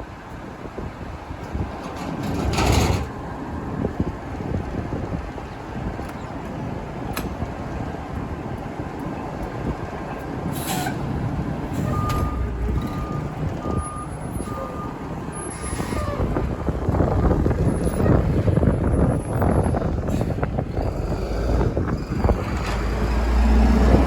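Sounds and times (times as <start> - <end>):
diesel engine rumbling: 0.0 - 24.0
backup alarm beeping: 11.9 - 15.0.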